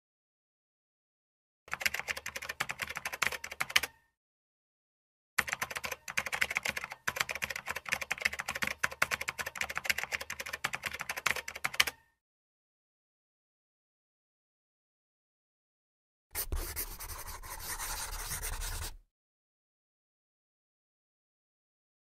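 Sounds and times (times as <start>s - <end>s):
keyboard typing clicks: 5.4s - 12.0s.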